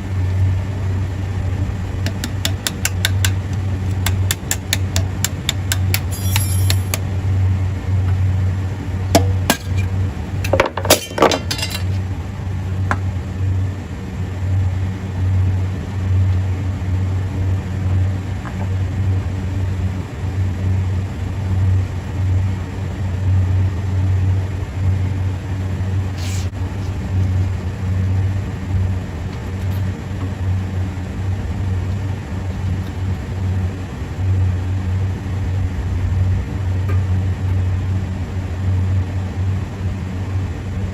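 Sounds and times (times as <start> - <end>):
low machine hum: 0.0 - 40.9
metallic clinks and knocks: 2.1 - 7.0, 9.2 - 12.0.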